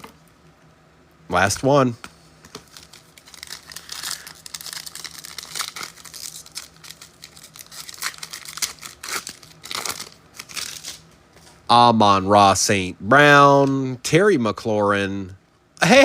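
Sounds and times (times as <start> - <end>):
foil wrapper tearing and crinkling: 2.6 - 11.1.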